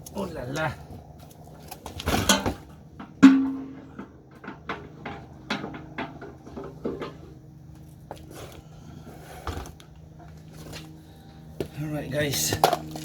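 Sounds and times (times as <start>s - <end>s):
steady low hum: 0.0s - 13.0s
metal knocks and clicks: 2.3s - 7.2s
sharp metal clang: 3.1s - 4.0s.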